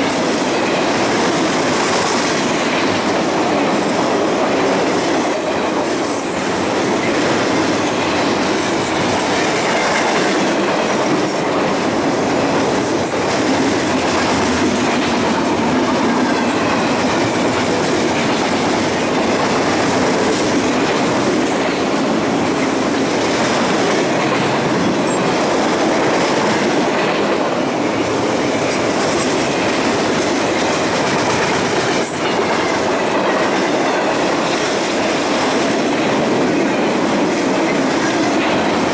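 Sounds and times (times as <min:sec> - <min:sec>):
train wheels clattering over rails: 0:00.0 - 0:38.9.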